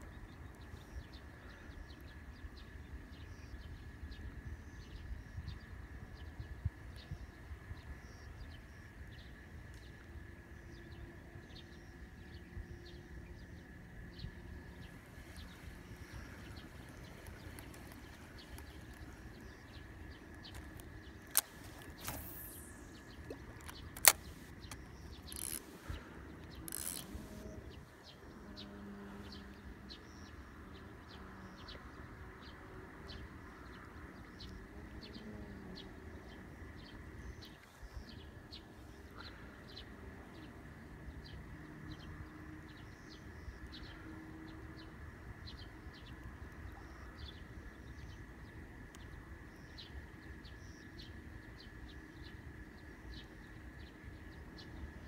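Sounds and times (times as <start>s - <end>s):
bird chirping: 10.7s - 30.4s
sharp clicks: 20.3s - 27.4s.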